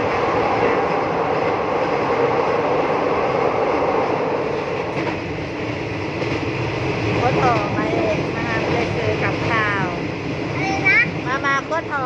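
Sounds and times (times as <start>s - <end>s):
train rumbling and rattling: 0.0s - 12.0s.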